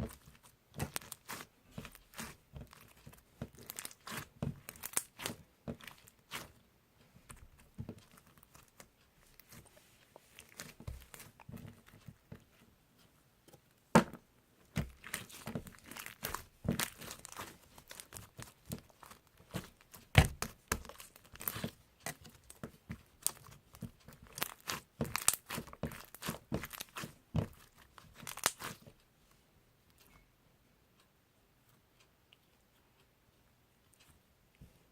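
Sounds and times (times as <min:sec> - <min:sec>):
crinkling and tearing: 0:00.0 - 0:06.6, 0:14.8 - 0:22.6, 0:23.2 - 0:28.8.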